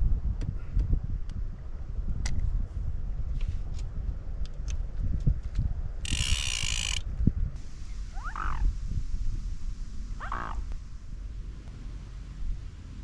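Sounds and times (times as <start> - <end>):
wind rumble on microphone: 0.0 - 13.0
loud hiss burst: 7.6 - 11.4
animal croaking calls: 8.1 - 8.7, 10.2 - 10.8.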